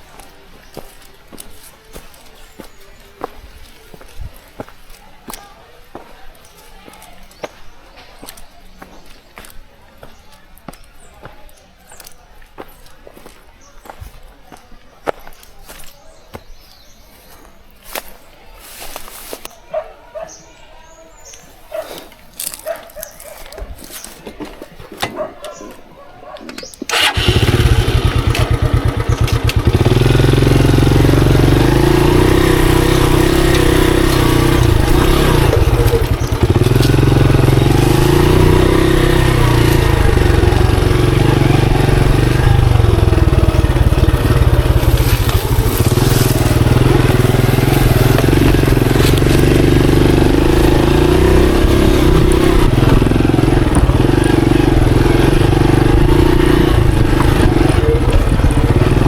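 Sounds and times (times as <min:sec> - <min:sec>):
motorcycle engine starting and idling: 0:26.5 - 0:59.0.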